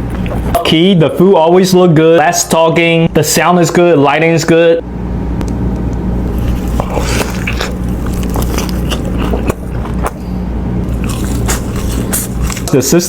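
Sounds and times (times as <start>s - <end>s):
low hum: 0.0s - 13.0s
chewing and crunching: 6.2s - 12.9s.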